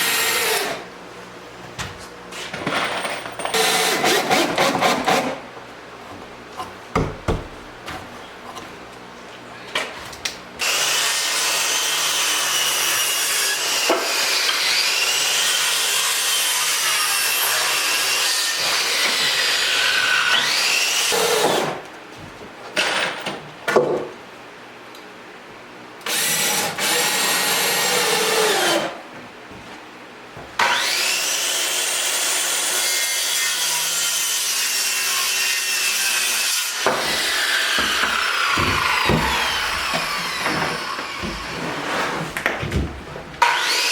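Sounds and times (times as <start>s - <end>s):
power tool working wood: 3.5s - 5.4s, 10.6s - 21.8s, 26.1s - 29.0s, 30.6s - 41.8s, 43.4s - 43.9s.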